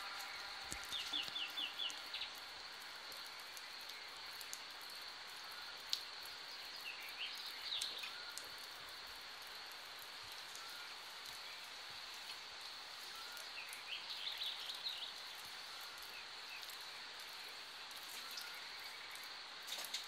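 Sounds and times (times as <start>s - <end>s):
birds chirping: 0.0s - 2.5s, 13.1s - 19.4s
faint background hiss: 0.0s - 20.0s.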